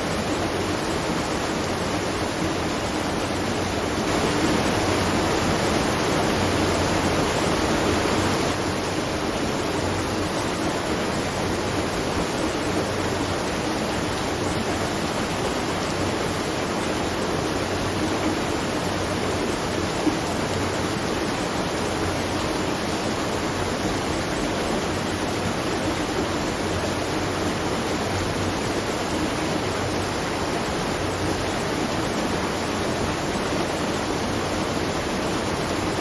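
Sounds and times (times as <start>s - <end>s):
falling water rushing: 0.0s - 36.0s.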